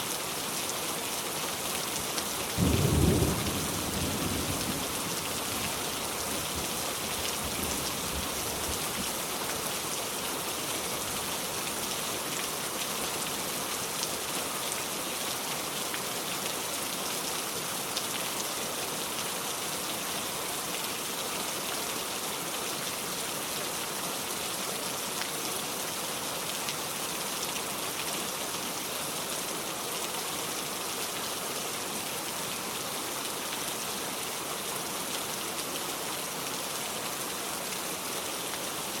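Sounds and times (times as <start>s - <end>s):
heavy rain on a metal roof: 0.0s - 39.0s
low thunder rumble: 2.6s - 5.2s.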